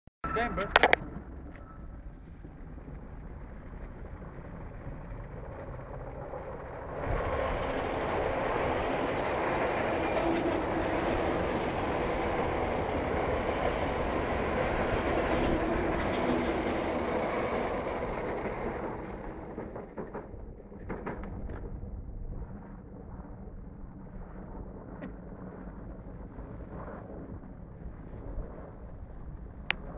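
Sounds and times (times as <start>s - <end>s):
electric train passing: 6.0s - 19.9s.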